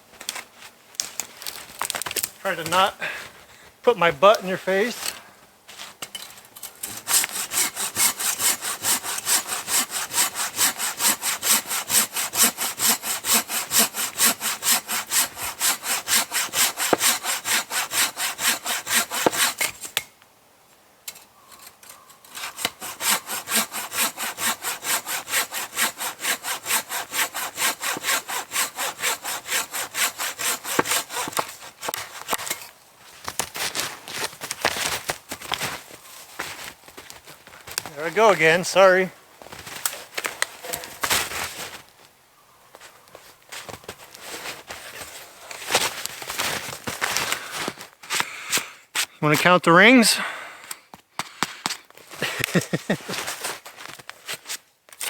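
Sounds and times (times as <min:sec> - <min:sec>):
hand saw cutting wood: 0:06.8 - 0:20.0, 0:22.3 - 0:32.6, 0:40.6 - 0:41.6.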